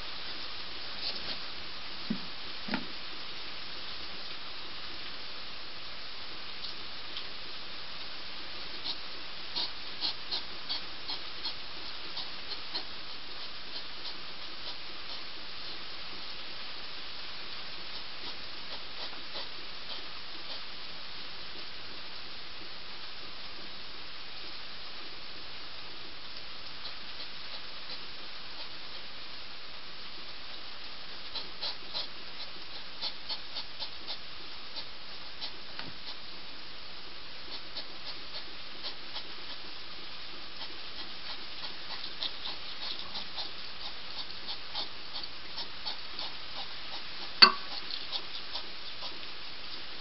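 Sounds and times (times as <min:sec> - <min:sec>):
hedgehog eating dry food: 0:08.6 - 0:16.6, 0:17.4 - 0:21.0, 0:37.5 - 0:50.0.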